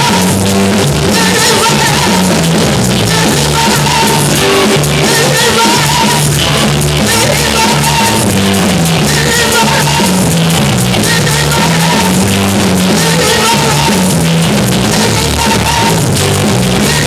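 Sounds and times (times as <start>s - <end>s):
drum kit beat: 0.0s - 17.0s
loud band music: 0.0s - 17.0s.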